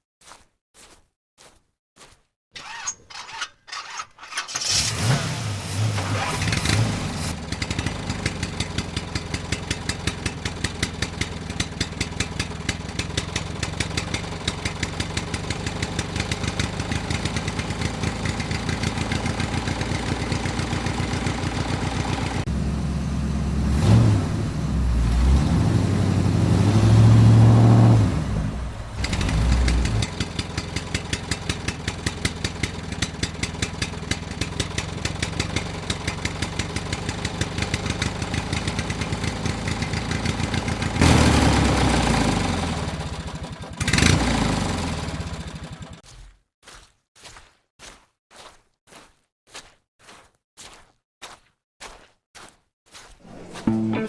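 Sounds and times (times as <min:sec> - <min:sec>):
small engine cranking: 0:02.6 - 0:07.4
small engine running: 0:02.6 - 0:46.0.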